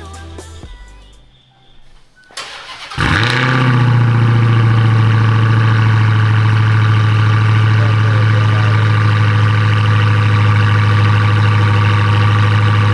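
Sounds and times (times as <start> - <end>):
ignition click: 0.0 - 5.8
car engine starting and idling: 0.0 - 12.9.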